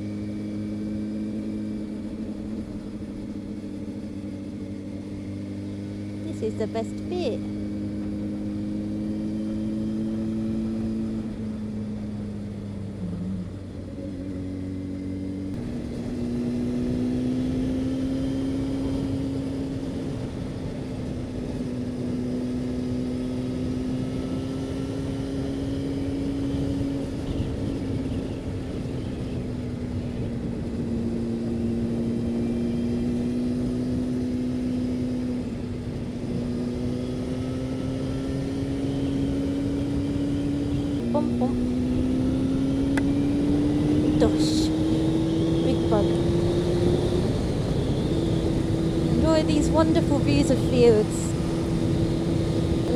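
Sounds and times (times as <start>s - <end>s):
motorcycle engine running at speed: 0.0s - 52.9s.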